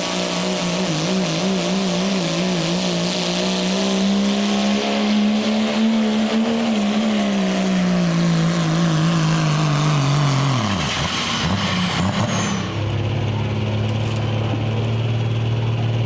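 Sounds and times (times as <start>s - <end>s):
diesel pickup engine at full throttle: 0.0s - 16.0s.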